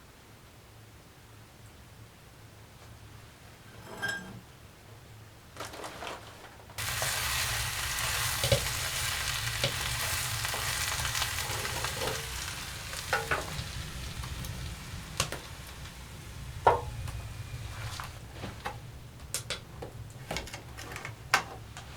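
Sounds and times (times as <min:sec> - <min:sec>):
food sizzling in a pan: 0:06.8 - 0:18.3.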